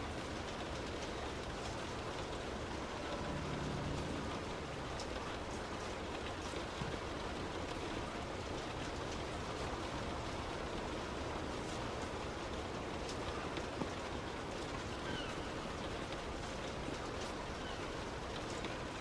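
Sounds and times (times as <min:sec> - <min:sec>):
heavy rain on car: 0:00.0 - 0:19.0
road noise: 0:02.1 - 0:07.3.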